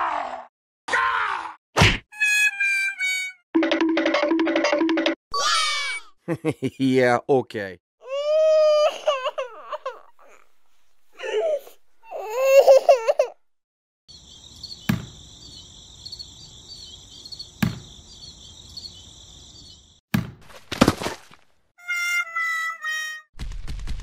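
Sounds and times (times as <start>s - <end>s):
baby-like crying voice: 2.2s - 3.4s, 5.3s - 6.2s, 8.0s - 10.5s, 11.2s - 13.4s
high insect-like chirping: 14.1s - 20.0s
sharp knocks: 14.9s - 15.2s, 17.6s - 17.9s
thuds: 14.9s - 15.2s, 17.6s - 17.9s.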